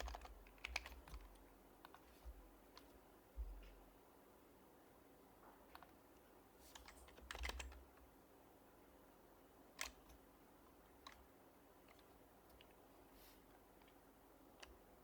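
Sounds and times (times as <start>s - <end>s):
soft keyboard keystrokes: 0.0s - 3.8s, 5.4s - 6.0s, 6.7s - 8.1s, 9.7s - 12.8s.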